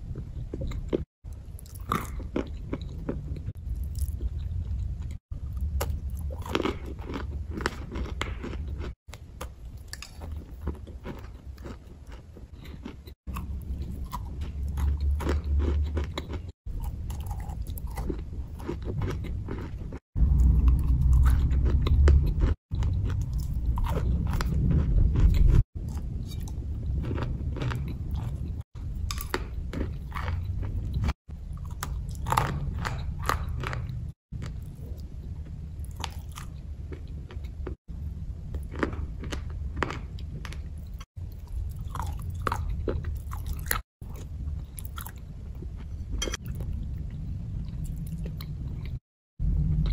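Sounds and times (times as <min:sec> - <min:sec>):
crunchy chewing: 0:00.0 - 0:37.8, 0:38.5 - 0:49.0
low rumble: 0:20.2 - 0:34.2, 0:44.3 - 0:49.9.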